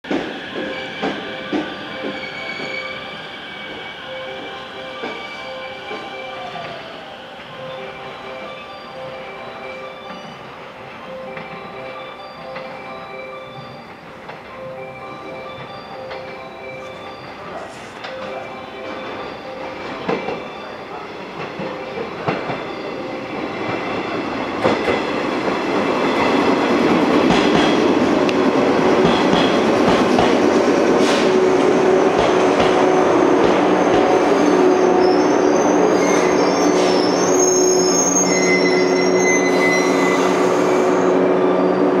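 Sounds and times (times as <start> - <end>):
high squealing tones: 34.3 - 42.0.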